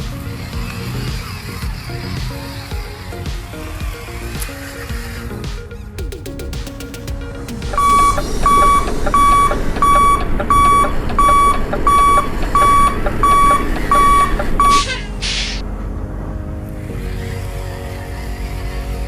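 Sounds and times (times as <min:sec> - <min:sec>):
truck reversing alarm beeping: 0:07.8 - 0:15.1.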